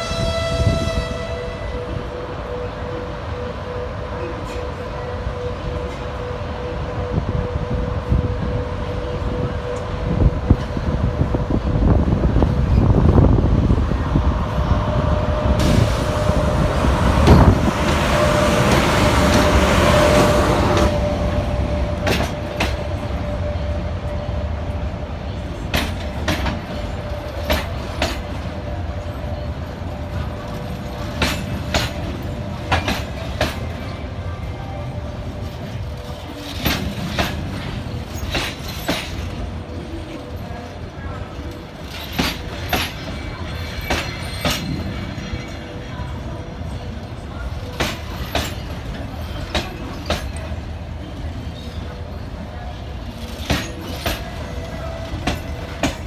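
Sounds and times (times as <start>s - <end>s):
electric locomotive rumble and whine: 0.0s - 56.0s
loud rushing hiss: 13.7s - 22.6s
wheels clicking over rail joints: 47.0s - 56.0s.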